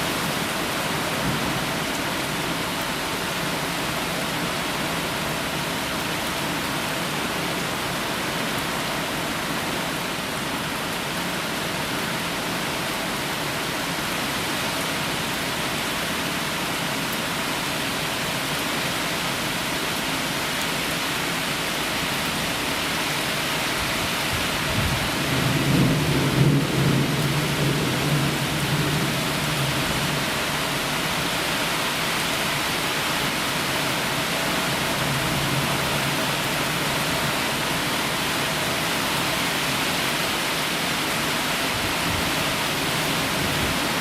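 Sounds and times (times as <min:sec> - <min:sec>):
heavy rain falling: 0:00.0 - 0:44.0
thunder rumbling: 0:24.6 - 0:30.3.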